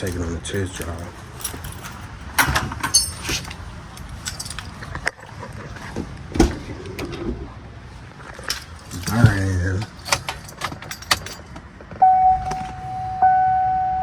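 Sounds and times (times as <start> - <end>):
keys jangling: 0.0 - 5.1, 8.2 - 11.6.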